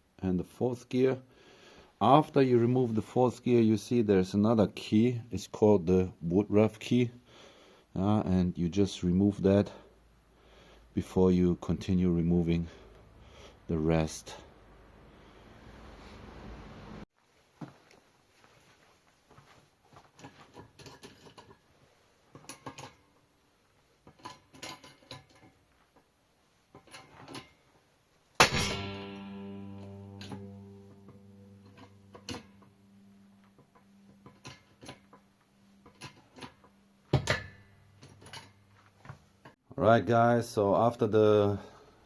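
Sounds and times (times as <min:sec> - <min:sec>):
metal parts clicking: 0:24.0 - 0:25.6
ringing metallic clang: 0:28.4 - 0:38.6.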